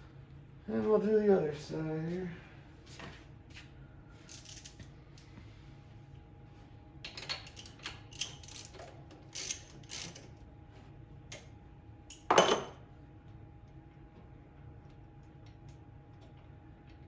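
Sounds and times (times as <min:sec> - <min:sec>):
ratchet wrench clicking: 0:07.4 - 0:10.3.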